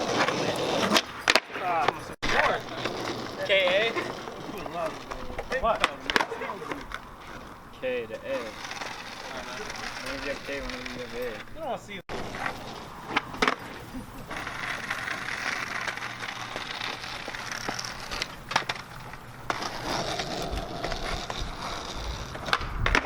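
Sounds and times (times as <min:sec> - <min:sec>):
skateboard clacking on ground: 0:00.0 - 0:23.0
skateboard rolling on pavement: 0:00.0 - 0:23.0.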